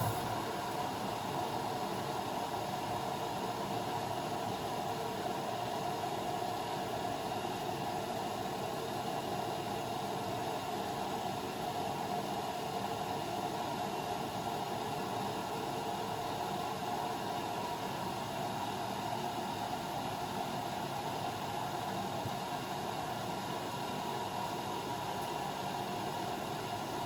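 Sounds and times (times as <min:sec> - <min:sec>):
washing machine running: 0:00.0 - 0:02.6.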